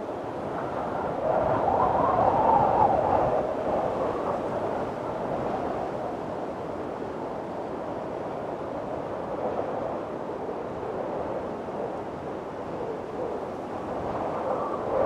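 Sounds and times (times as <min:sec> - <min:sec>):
strong wind rushing: 0:00.2 - 0:06.4.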